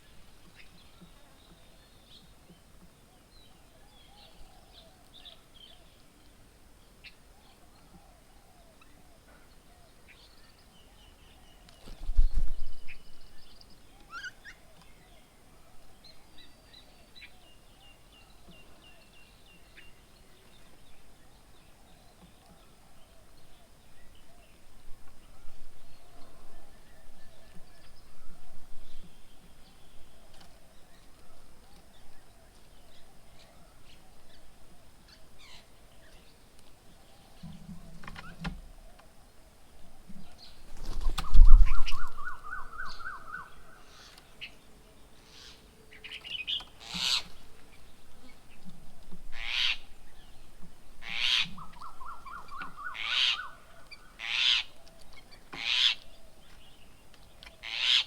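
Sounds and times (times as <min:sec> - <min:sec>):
sharp bird calls: 0:40.5 - 0:44.6, 0:45.2 - 0:48.5, 0:49.3 - 0:50.4, 0:51.0 - 0:56.6, 0:57.4 - 0:58.0.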